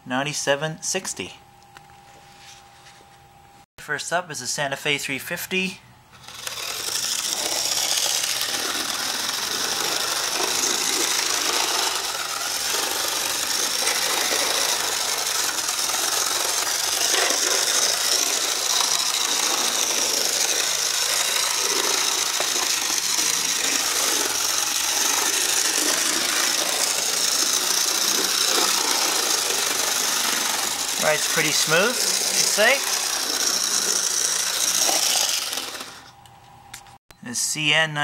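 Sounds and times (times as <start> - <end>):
electric motor high whine: 6.1 - 36.4
wheels rattling and clicking on rails: 6.2 - 36.1.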